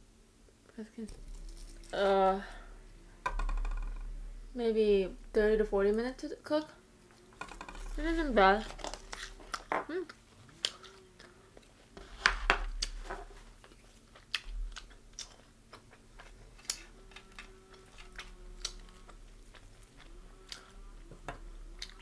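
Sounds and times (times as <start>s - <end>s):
crunchy chewing of fried chicken: 8.8s - 12.0s, 12.7s - 22.0s.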